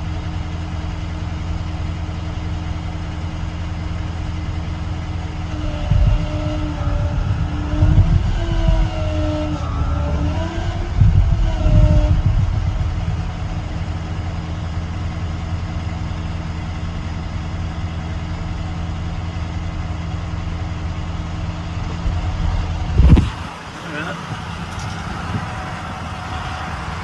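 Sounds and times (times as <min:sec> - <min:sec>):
diesel engine running: 0:00.0 - 0:27.0
whining tone: 0:05.3 - 0:13.2, 0:23.0 - 0:27.0.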